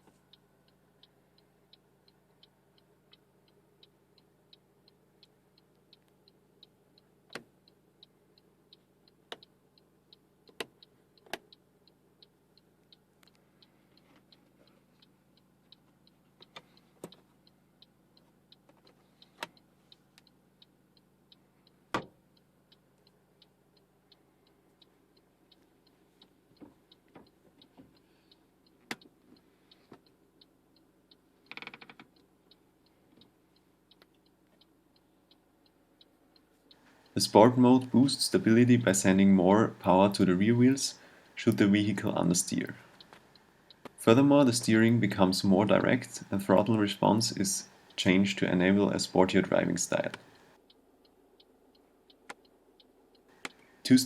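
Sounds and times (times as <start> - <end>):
faint even ticking: 0.0 - 54.0
low steady hum: 32.2 - 54.0
sharp clicks: 36.7 - 50.8, 51.7 - 54.0.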